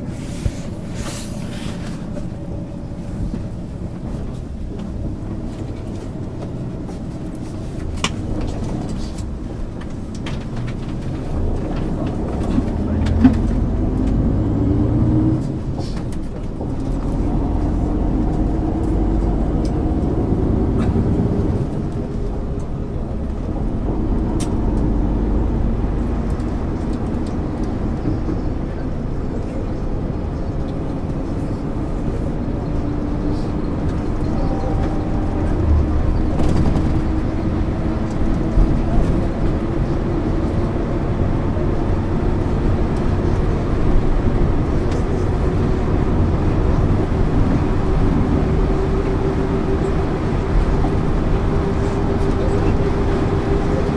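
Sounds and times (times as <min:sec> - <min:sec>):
bus diesel engine: 0:00.0 - 0:53.9
rattles and clicks: 0:03.2 - 0:14.2.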